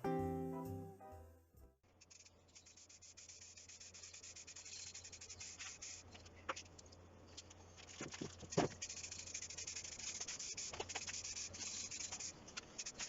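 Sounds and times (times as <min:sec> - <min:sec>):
hand-sanding strokes: 0:02.0 - 0:06.2, 0:08.7 - 0:13.0.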